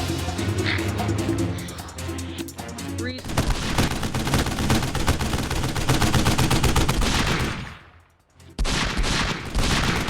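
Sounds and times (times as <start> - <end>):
rapid gunfire-like shots: 3.2 - 8.0, 8.6 - 10.0.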